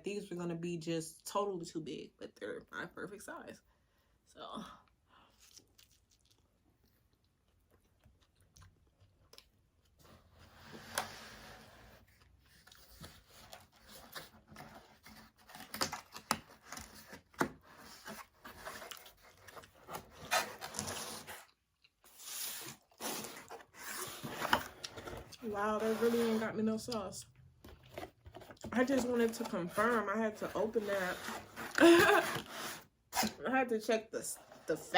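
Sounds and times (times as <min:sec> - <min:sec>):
food chewed and crunched: 0:05.3 - 0:10.0
food tearing and handling: 0:05.3 - 0:10.3.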